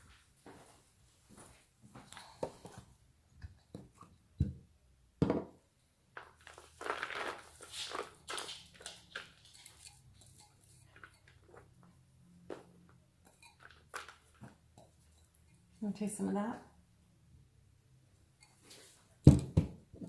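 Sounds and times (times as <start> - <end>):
bird pecking and crunching vegetables: 6.5 - 11.9.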